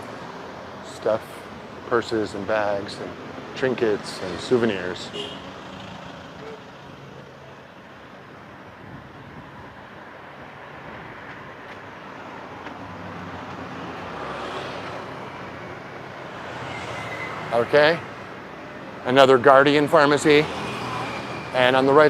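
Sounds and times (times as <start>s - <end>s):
traffic hum on busy road: 0.0s - 22.0s
vehicle passing: 11.9s - 22.0s.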